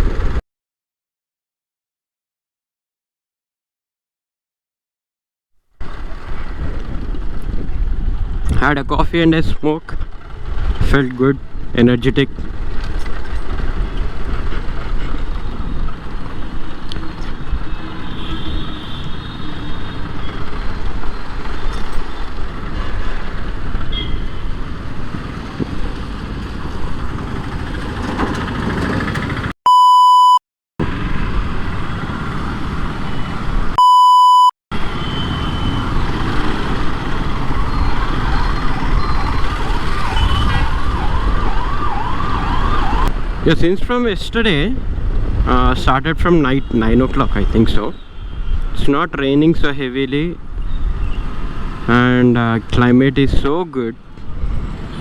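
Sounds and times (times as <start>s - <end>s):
road traffic: 0.0s - 0.4s, 5.8s - 55.0s
wind noise: 5.8s - 29.5s, 35.7s - 48.9s, 50.4s - 55.0s
electronic bleep tone: 29.7s - 30.4s, 33.8s - 35.8s
wailing siren: 37.2s - 43.2s.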